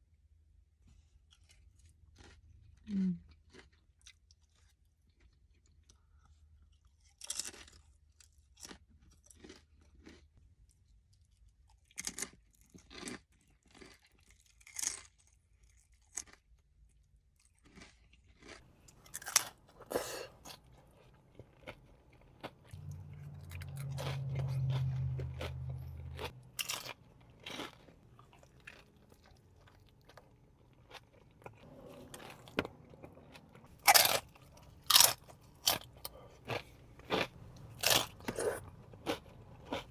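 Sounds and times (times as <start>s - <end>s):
person crunching and chewing: 1.1s - 39.9s
low hum: 22.7s - 27.4s.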